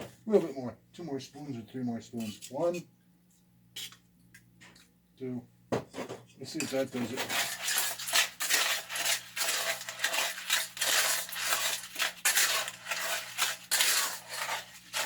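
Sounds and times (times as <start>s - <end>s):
spoon scraping wet concrete: 1.5s - 2.7s, 6.5s - 15.0s.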